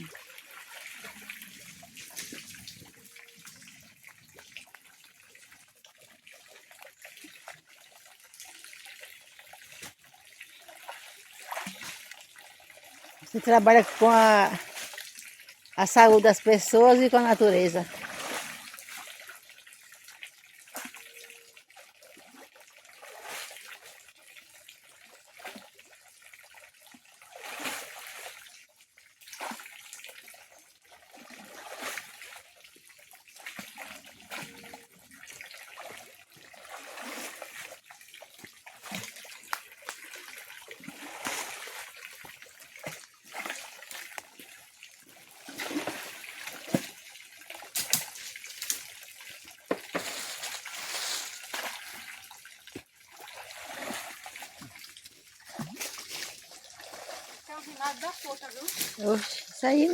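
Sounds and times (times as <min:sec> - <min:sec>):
water trickling: 0:00.0 - 0:59.9
water splashing: 0:08.4 - 0:19.5, 0:33.3 - 0:59.9.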